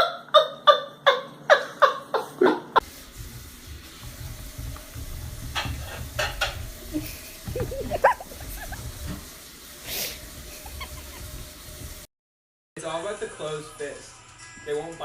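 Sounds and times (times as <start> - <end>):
animal squeaking: 10.6 - 11.3.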